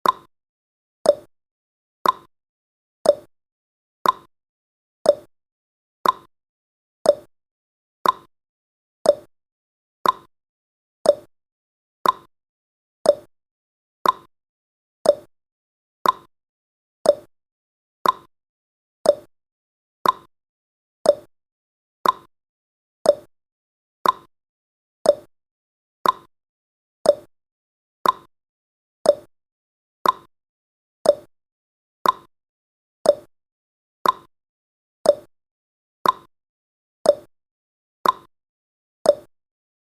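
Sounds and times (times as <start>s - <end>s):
timer ticking: 0.0s - 0.3s, 1.1s - 1.3s, 2.0s - 2.3s, 3.0s - 3.3s, 4.0s - 4.3s, 5.1s - 5.3s, 6.0s - 6.3s, 7.1s - 7.3s, 8.0s - 8.3s, 9.0s - 9.3s, 10.0s - 10.3s, 11.0s - 11.3s, 12.0s - 12.3s, 13.0s - 13.3s, 14.0s - 14.3s, 15.0s - 15.3s, 16.0s - 16.3s, 17.0s - 17.3s, 18.0s - 18.3s, 19.0s - 19.3s, 20.0s - 20.3s, 21.0s - 21.3s, 22.0s - 22.3s, 23.0s - 23.3s, 24.0s - 24.3s, 25.0s - 25.3s, 26.0s - 26.3s, 27.0s - 27.3s, 28.0s - 28.3s, 29.0s - 29.3s, 30.0s - 30.3s, 31.0s - 31.3s, 32.0s - 32.3s, 33.0s - 33.3s, 34.0s - 34.3s, 35.0s - 35.3s, 36.0s - 36.3s, 37.1s - 37.3s, 38.0s - 38.3s, 39.1s - 39.3s.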